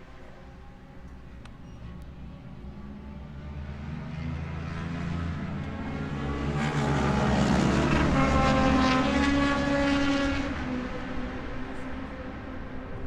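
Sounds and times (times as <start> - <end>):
motorcycle engine passing by: 3.6 - 11.0.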